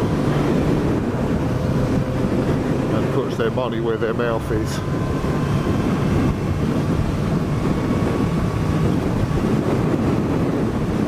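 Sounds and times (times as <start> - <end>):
motorcycle engine running: 0.0 - 11.0
wind noise on microphone: 0.0 - 11.0.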